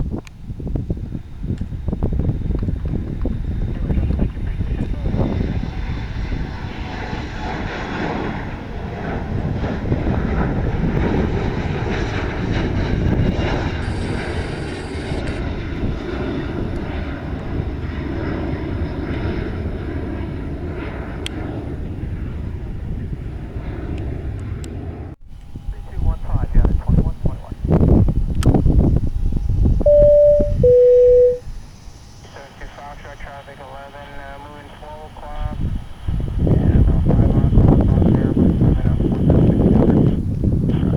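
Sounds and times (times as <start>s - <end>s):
airliner engines rumbling: 0.0s - 40.9s
faint engine whine: 23.0s - 27.7s, 29.9s - 40.3s.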